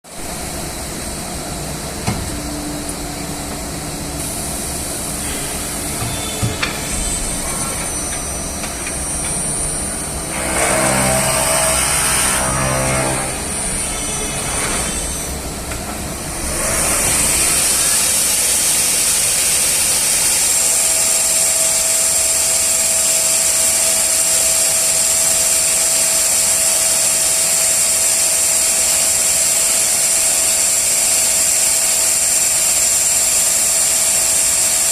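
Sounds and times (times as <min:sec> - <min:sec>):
cnc machine running: 0:00.2 - 0:34.9
high-pitched spindle whine: 0:02.1 - 0:15.7.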